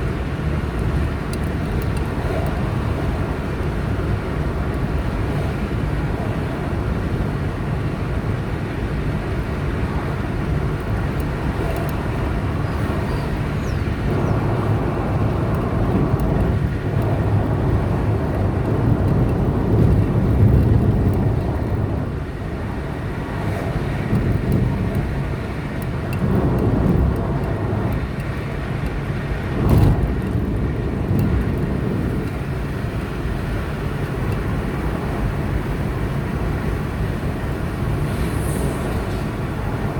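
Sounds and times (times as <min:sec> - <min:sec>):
car driving on highway: 0:00.0 - 0:39.9
brief rush of passing traffic: 0:37.6 - 0:39.9.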